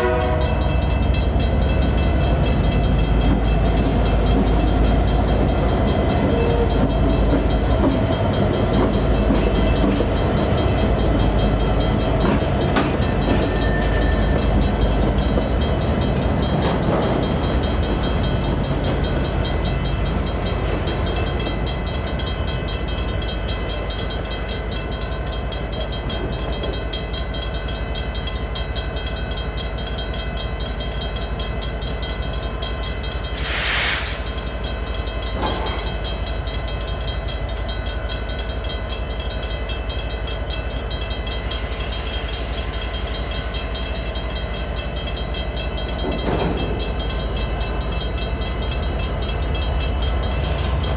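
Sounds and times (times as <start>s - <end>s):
crossing bells ringing: 0.0s - 50.9s
freight train rumbling: 0.0s - 50.9s
short hiss: 33.4s - 34.3s.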